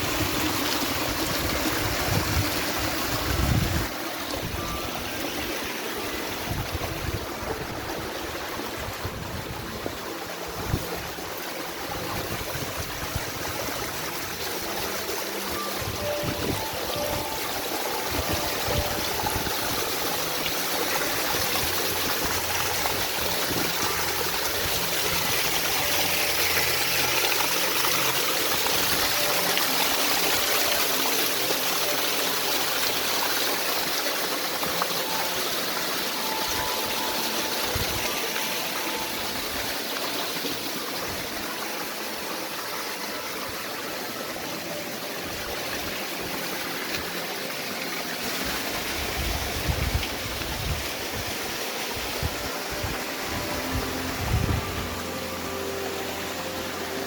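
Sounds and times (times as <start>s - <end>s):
water rushing over rocks: 0.0s - 57.0s.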